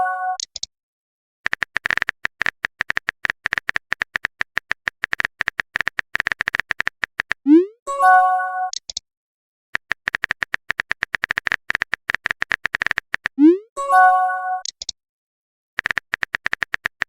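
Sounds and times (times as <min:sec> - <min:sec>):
keyboard clicks: 0:01.4 - 0:07.5, 0:08.7 - 0:09.0, 0:09.8 - 0:13.5, 0:14.6 - 0:15.0, 0:15.8 - 0:17.0.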